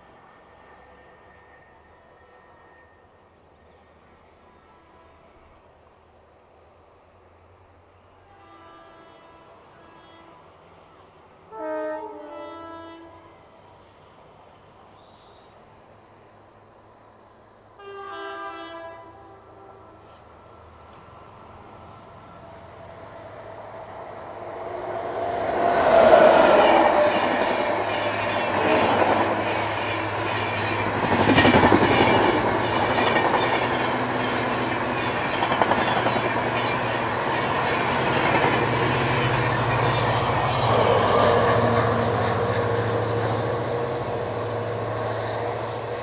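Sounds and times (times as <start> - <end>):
train passing at speed: 0.0 - 46.0.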